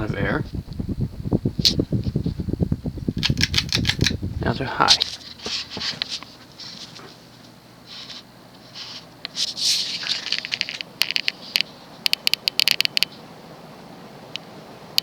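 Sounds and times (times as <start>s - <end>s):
rush of air: 0.0s - 6.2s
ceiling fan spinning: 0.0s - 15.0s
sharp clicks and light rattles: 3.2s - 6.3s.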